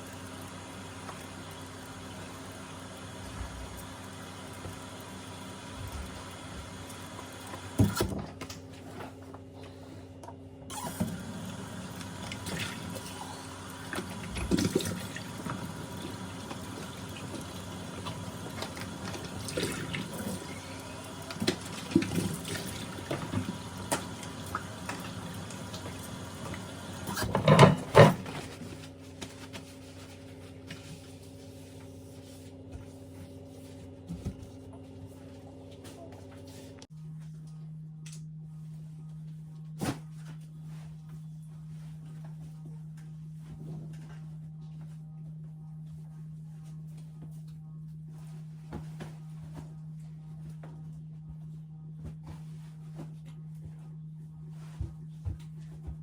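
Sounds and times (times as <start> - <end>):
water running: 10.8 - 28.2.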